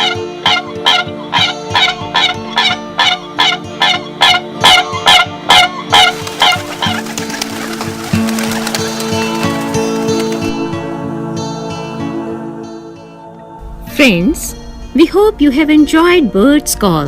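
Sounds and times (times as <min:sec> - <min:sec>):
crane calling: 0:05.9 - 0:10.8.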